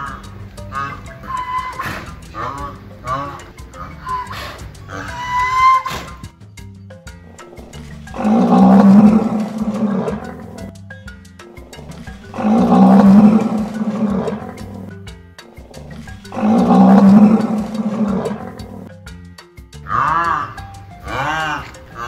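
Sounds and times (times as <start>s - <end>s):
background music: 0.0s - 22.0s
rhinoceros roaring bellow: 7.5s - 10.7s, 12.3s - 14.9s, 16.2s - 18.9s, 19.9s - 22.0s.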